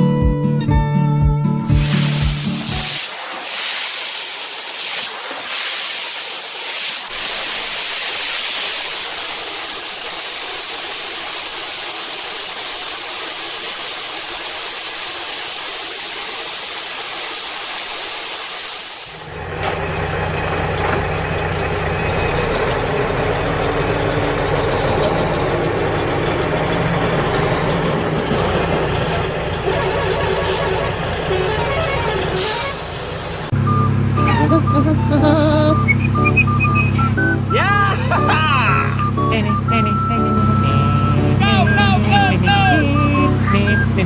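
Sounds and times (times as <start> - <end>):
steady hiss: 1.7 - 19.3
vehicle engine humming: 19.1 - 44.0.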